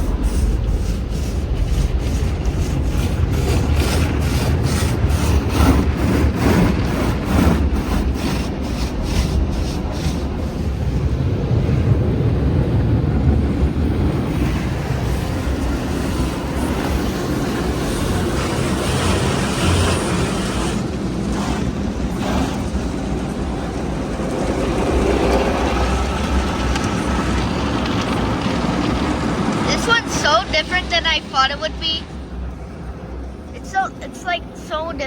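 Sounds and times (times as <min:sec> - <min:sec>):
car wash machinery rumbling: 0:00.0 - 0:31.5
water spraying: 0:18.7 - 0:22.9.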